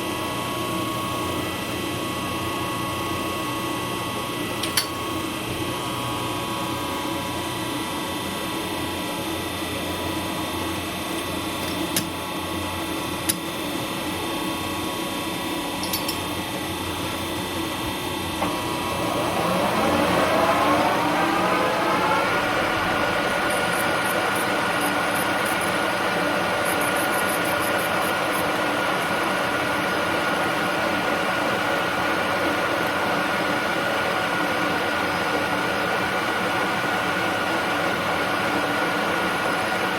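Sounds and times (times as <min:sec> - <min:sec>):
machine tool motor whine: 0:15.4 - 0:35.6.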